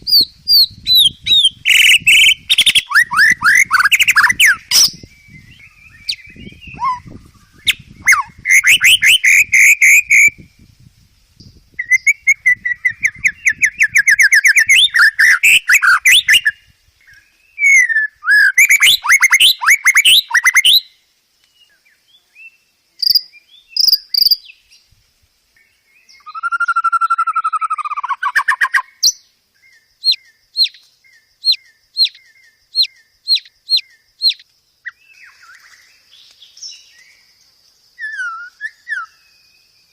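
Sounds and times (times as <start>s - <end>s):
sharp bird chips: 0.0s - 10.4s, 11.8s - 16.6s, 23.0s - 24.5s, 30.0s - 37.2s
slurred bird whistle: 0.0s - 10.6s, 11.8s - 20.9s, 26.0s - 29.2s, 31.4s - 35.7s, 38.0s - 39.7s
songbird singing: 0.0s - 39.9s.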